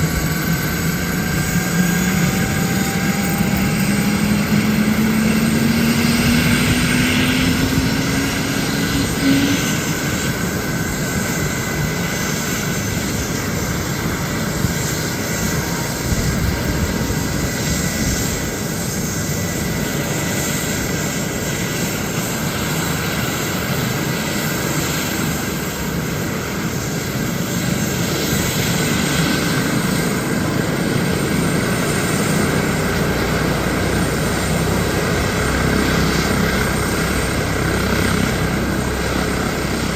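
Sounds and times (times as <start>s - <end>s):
low whine rising in pitch: 0.0s - 10.2s
helicopter turbine and rotor: 0.0s - 39.9s.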